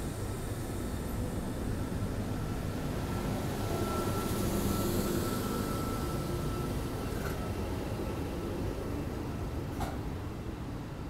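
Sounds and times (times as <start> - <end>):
train rumbling slowly past: 0.0 - 11.0
faint high whine: 2.0 - 7.2.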